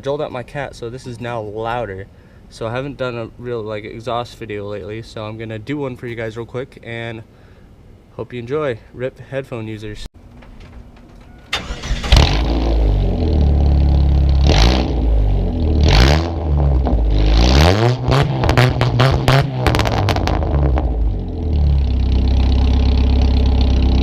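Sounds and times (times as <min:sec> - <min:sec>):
exhaust crackling: 0:10.2 - 0:24.0
pickup engine idling and revving: 0:12.0 - 0:24.0.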